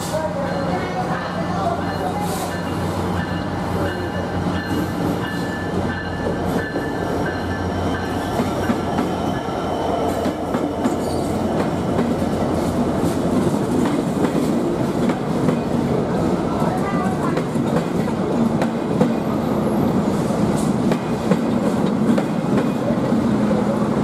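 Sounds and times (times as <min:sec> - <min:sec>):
train wheels squealing: 0:01.9 - 0:11.8.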